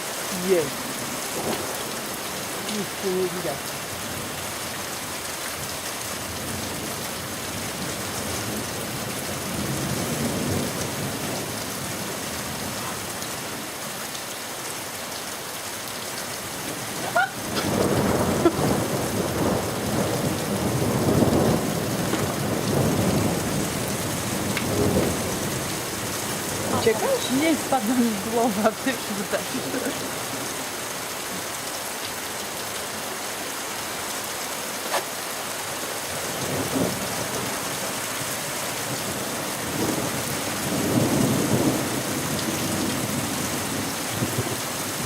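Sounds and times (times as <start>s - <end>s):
steady rain falling: 0.0s - 45.0s
thunder crack and rolling rumble: 17.4s - 27.8s, 38.8s - 45.0s.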